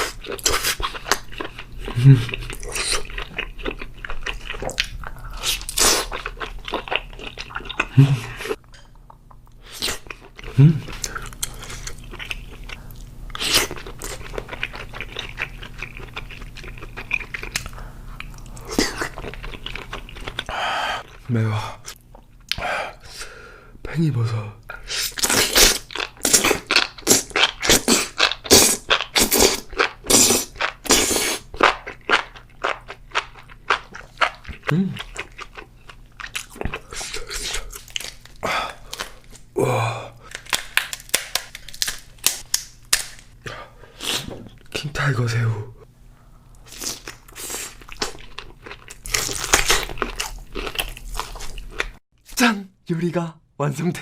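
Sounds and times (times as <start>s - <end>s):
crunching bites and chewing: 0.0s - 20.5s, 25.0s - 39.5s, 40.3s - 43.3s, 46.6s - 52.0s
person humming: 10.5s - 10.9s, 34.7s - 35.0s, 39.6s - 40.3s
wet slurping and chewing: 24.8s - 39.4s.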